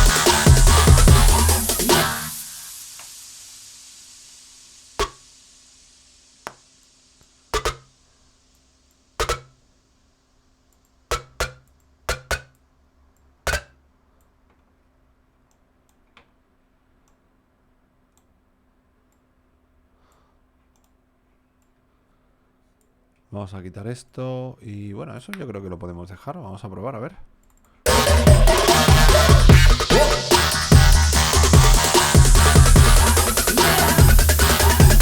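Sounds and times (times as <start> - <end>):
electronic music: 0.0 - 2.9, 27.9 - 35.0
computer mouse clicking: 20.1 - 21.0.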